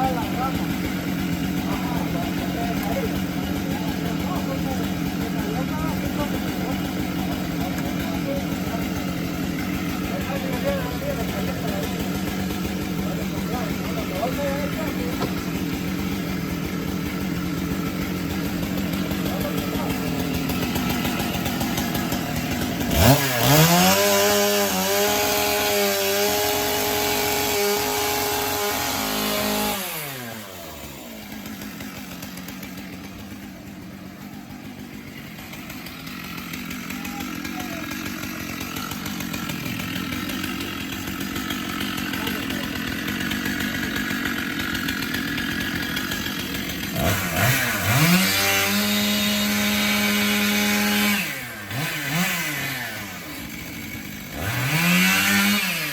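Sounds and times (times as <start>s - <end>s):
chainsaw revving and idling: 0.0s - 55.9s.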